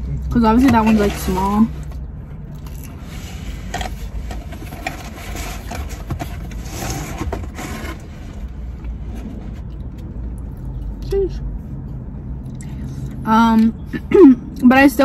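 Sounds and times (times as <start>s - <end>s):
low rumble inside car: 0.0s - 15.0s
person chewing food: 1.9s - 3.1s.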